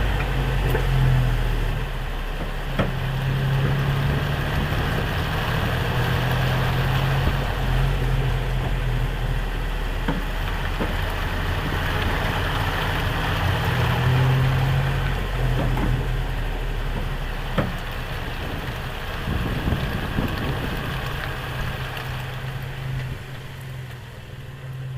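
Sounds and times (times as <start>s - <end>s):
road noise: 0.0s - 24.9s
vehicle engine hum: 0.0s - 24.9s.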